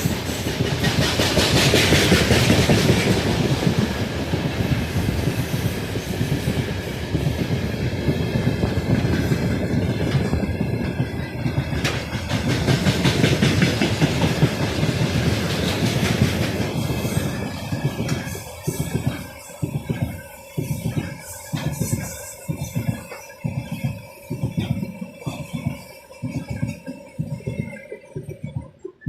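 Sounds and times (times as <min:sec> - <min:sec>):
train wheels rumbling: 0:00.0 - 0:28.6
clickety-clack over rail joints: 0:00.0 - 0:29.0.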